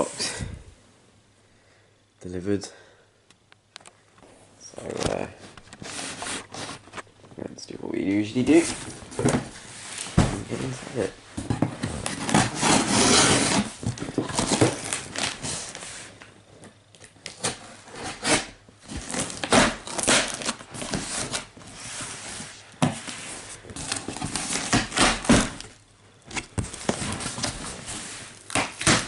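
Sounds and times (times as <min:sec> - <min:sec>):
cardboard box tearing and rustling: 0:08.5 - 0:15.8, 0:17.4 - 0:22.4, 0:23.8 - 0:25.7, 0:26.3 - 0:29.0.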